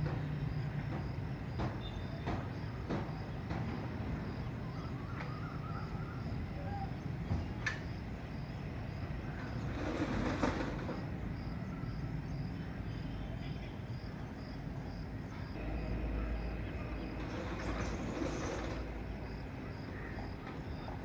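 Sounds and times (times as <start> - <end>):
faint insect chirp: 0.2 - 21.0
machinery rumbling: 15.2 - 21.0.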